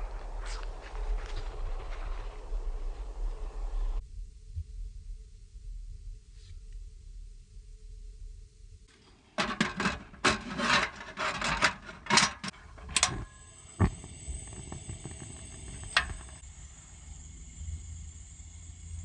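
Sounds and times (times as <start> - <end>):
rubbing and scraping strokes: 9.4 - 13.2.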